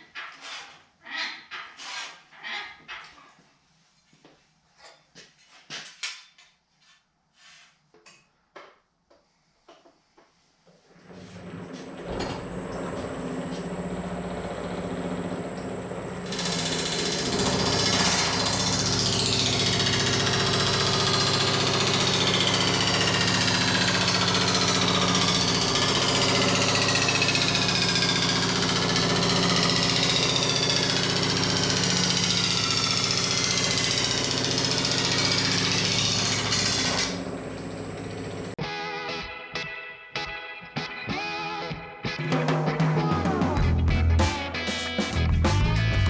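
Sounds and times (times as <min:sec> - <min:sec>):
motor hum: 0:11.2 - 0:38.6.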